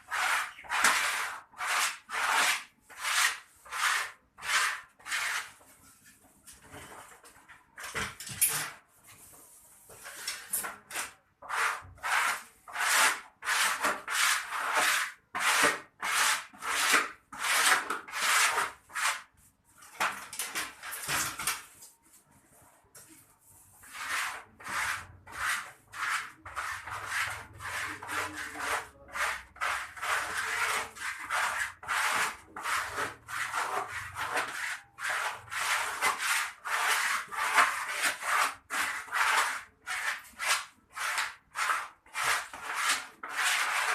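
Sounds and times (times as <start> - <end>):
rasping scraping strokes: 23.4 - 43.9.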